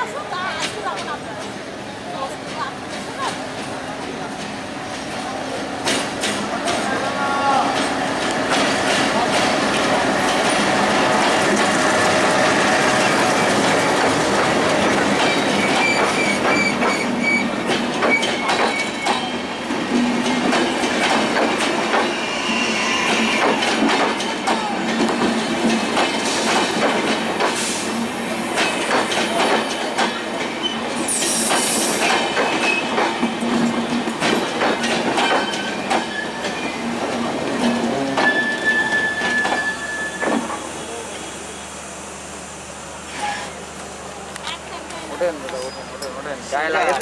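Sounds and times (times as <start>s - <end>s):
wheels clicking over rail joints: 28.6s - 38.5s
thin wheel squeal: 38.2s - 40.4s.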